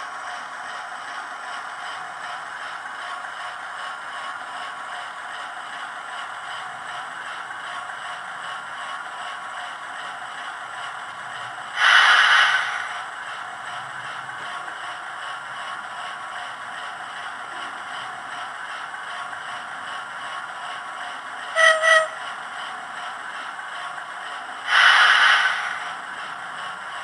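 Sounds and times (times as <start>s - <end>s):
model train running sound: 0.0s - 27.0s
loud noise burst: 11.8s - 13.0s, 24.7s - 25.9s.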